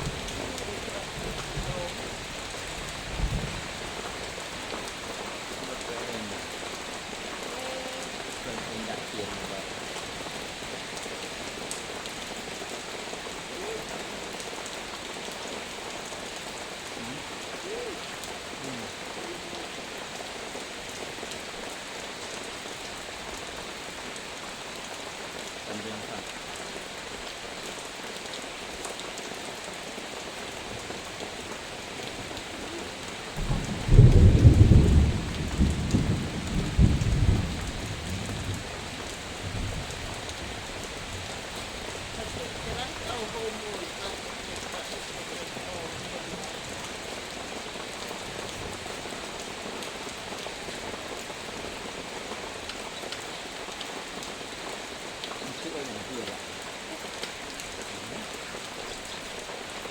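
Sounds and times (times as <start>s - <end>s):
thunder rumbling: 0.0s - 5.6s, 31.6s - 47.6s
heavy rain: 0.0s - 59.9s.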